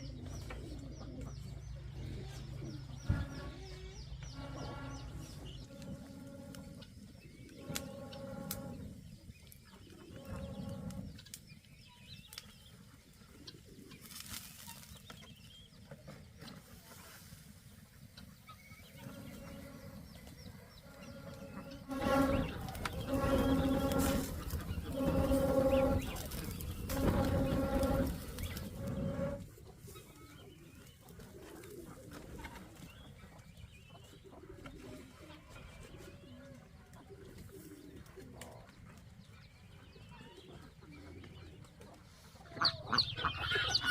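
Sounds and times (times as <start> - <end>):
pigeons cooing: 0.0 - 11.4, 18.3 - 39.3, 39.9 - 43.9.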